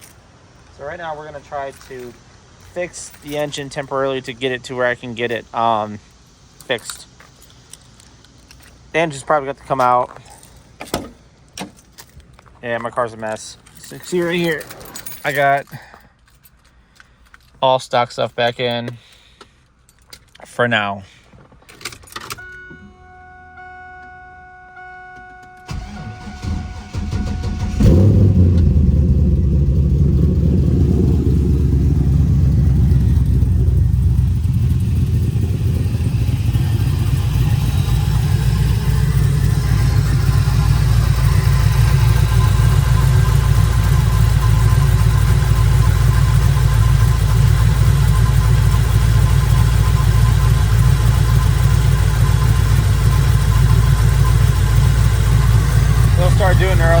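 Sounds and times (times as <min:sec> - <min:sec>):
car engine starting and idling: 0:21.3 - 0:57.0.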